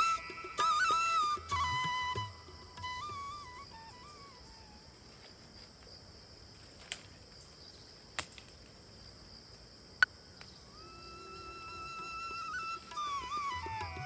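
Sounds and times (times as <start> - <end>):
flute music: 0.0 - 5.3, 10.7 - 14.0
crickets and insects chirping: 0.0 - 14.0.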